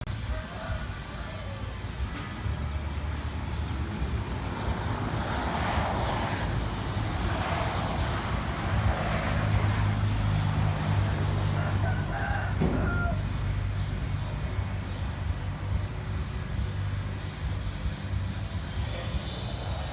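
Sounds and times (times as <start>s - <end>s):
car engine humming: 0.0s - 19.9s.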